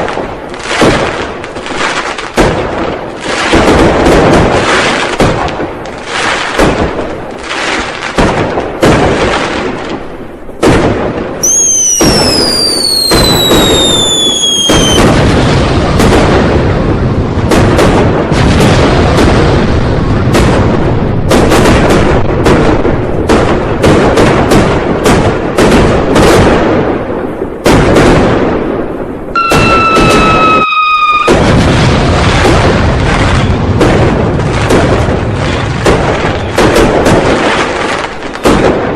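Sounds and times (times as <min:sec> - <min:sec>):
firecrackers banging: 0:00.0 - 0:38.9
descending high whistle: 0:11.4 - 0:15.0, 0:29.4 - 0:31.4
lower short whistle: 0:11.4 - 0:15.0, 0:29.4 - 0:31.4.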